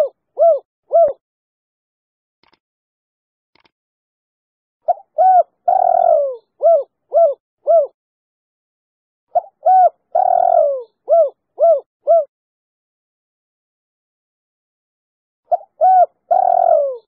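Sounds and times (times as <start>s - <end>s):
dove cooing: 0.0s - 1.2s, 4.9s - 8.0s, 9.4s - 12.3s, 15.5s - 17.0s.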